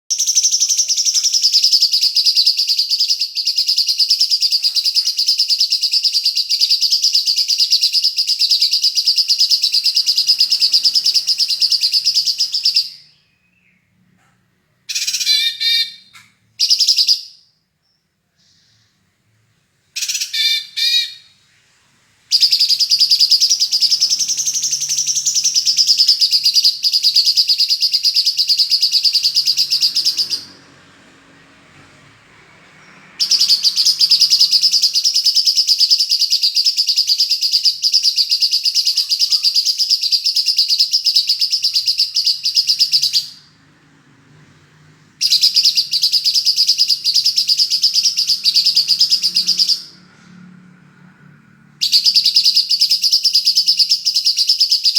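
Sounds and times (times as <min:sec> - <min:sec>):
songbird rapid high trilling: 0:22.3 - 0:30.6.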